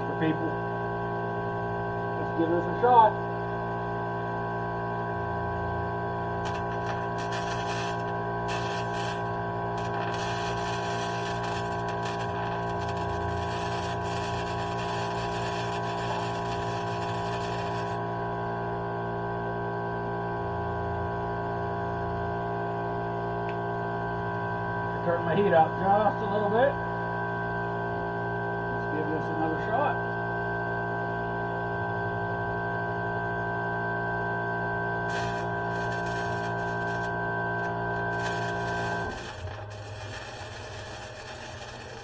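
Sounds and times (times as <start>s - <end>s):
electrical hum: 0.0s - 42.0s
welding arc crackling: 6.4s - 18.0s, 35.1s - 42.0s.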